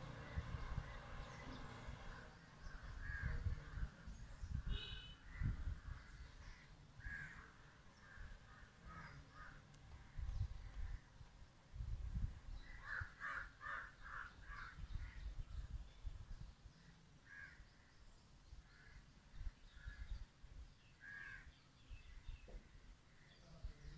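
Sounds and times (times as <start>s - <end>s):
bird calls: 12.5s - 15.6s.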